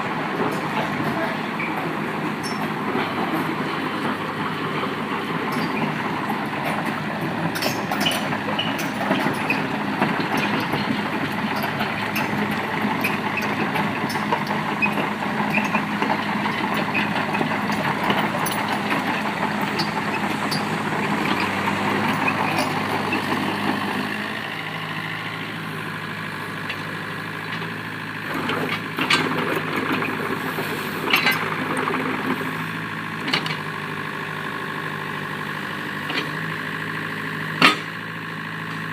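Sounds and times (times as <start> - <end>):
excavator engine running: 0.0 - 38.9
metal clanks: 37.6 - 37.9.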